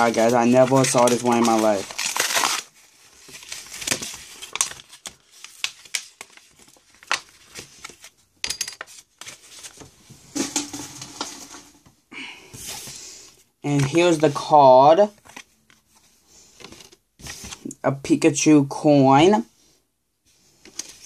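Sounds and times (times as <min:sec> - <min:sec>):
card packaging being torn open: 0:00.0 - 0:07.6.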